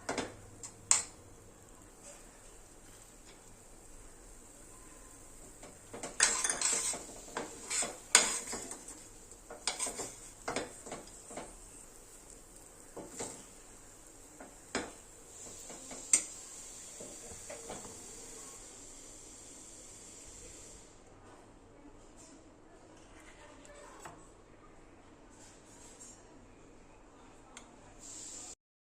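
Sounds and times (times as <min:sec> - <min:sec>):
metal spoon scraping cookware: 0:06.0 - 0:09.0, 0:09.6 - 0:11.2.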